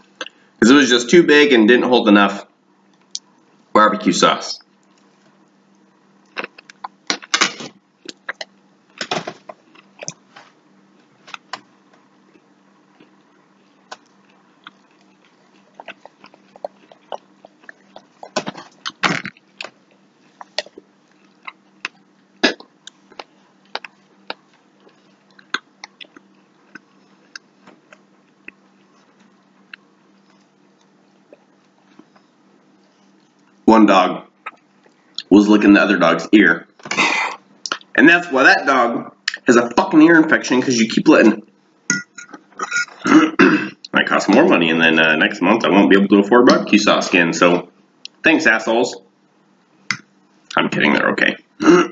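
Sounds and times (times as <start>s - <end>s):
man chewing: 4.8s - 33.6s, 41.9s - 43.1s
wet mouth clicks and smacks: 6.3s - 7.4s, 25.3s - 28.6s, 37.6s - 37.9s.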